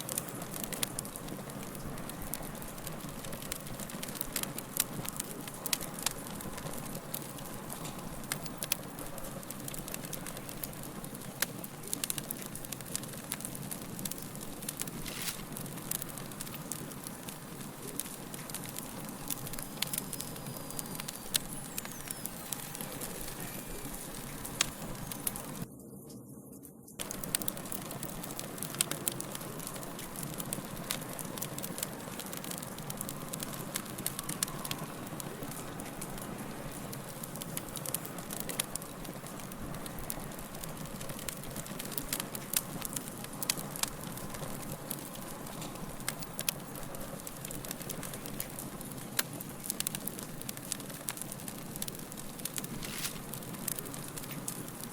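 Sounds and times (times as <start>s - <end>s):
hiss of flames: 0.0s - 25.7s, 27.0s - 54.9s
fire crackling and popping: 0.0s - 54.9s.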